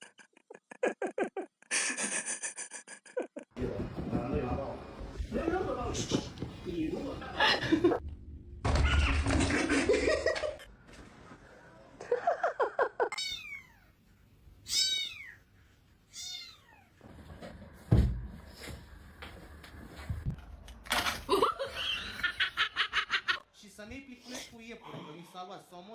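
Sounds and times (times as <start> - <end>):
cat meowing: 13.1 - 13.9, 14.6 - 15.4, 16.1 - 16.9.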